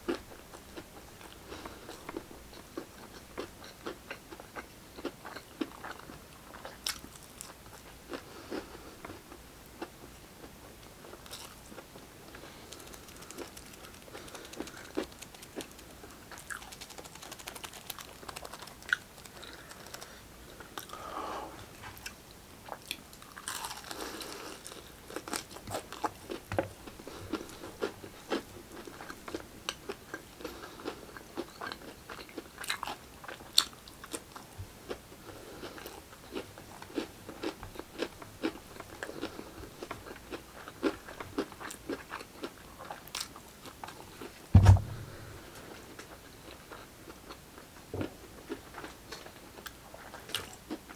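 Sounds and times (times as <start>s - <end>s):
crunching and chewing food: 0.0s - 21.1s, 21.8s - 44.4s, 46.7s - 50.9s
loud thump: 44.6s - 45.5s.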